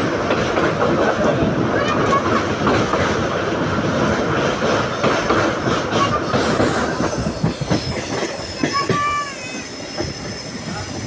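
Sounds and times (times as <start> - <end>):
train running rumble: 0.0 - 11.0
wheels clacking over rail joints: 0.0 - 11.0
faint wheel squeal: 7.1 - 11.0.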